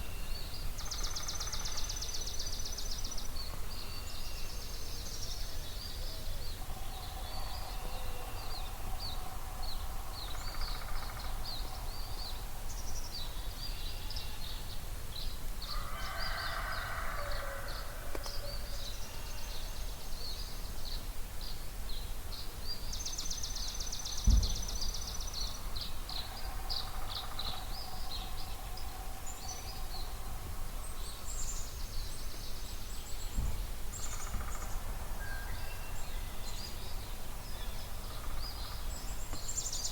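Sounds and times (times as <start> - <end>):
low thump: 24.2 - 25.9, 33.4 - 33.8.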